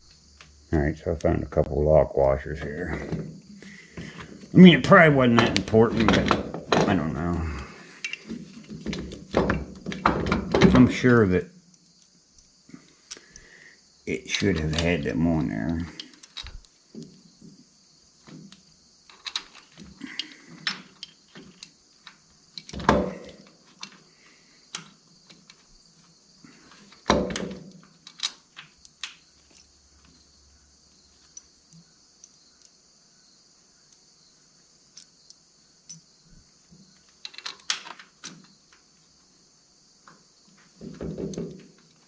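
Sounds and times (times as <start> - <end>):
metal bolts and tools clinking: 4.0 - 11.3, 14.3 - 16.7, 18.3 - 24.0, 26.7 - 30.2, 35.9 - 36.1, 37.2 - 38.5.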